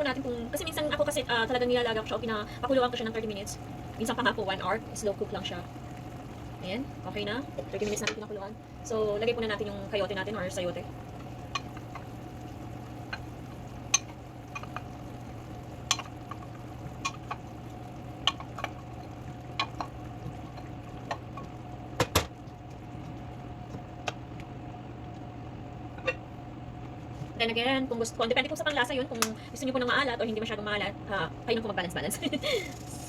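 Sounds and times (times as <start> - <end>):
steady hum: 0.0 - 33.0
food knocking against pot: 21.0 - 22.4.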